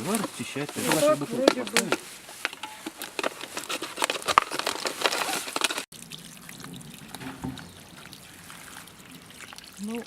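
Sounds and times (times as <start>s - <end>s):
water trickling and splashing: 5.8s - 10.0s.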